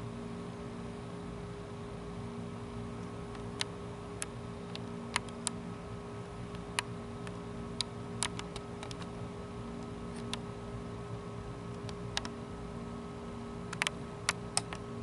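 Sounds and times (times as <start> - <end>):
steady even hum: 0.0 - 15.0
sharp clicks: 3.0 - 5.6, 6.2 - 9.1, 11.7 - 12.4, 13.7 - 14.8.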